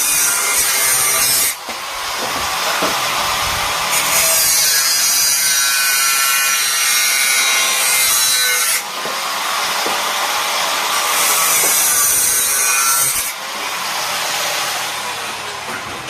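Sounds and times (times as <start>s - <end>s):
angle grinder grinding metal: 0.0s - 16.0s.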